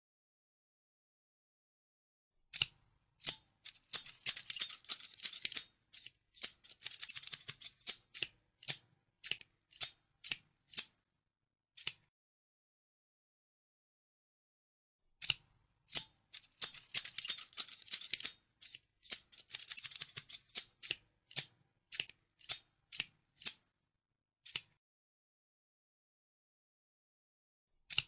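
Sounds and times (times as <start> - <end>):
scissors snipping: 2.5 - 11.0, 11.8 - 12.1, 15.2 - 23.6, 24.4 - 24.8.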